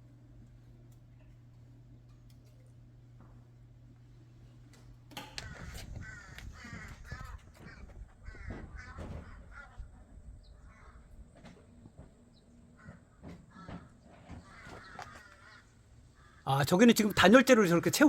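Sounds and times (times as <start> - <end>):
harsh cawing bird calls: 5.3 - 18.0.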